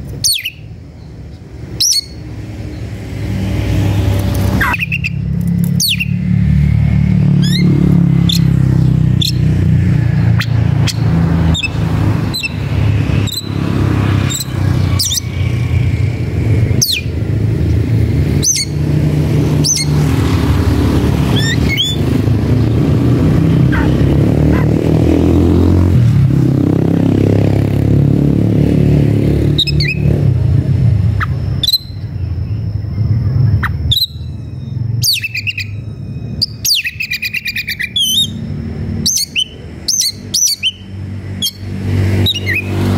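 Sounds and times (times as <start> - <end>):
bird giving sharp call notes: 4.5 - 6.3, 21.3 - 22.2.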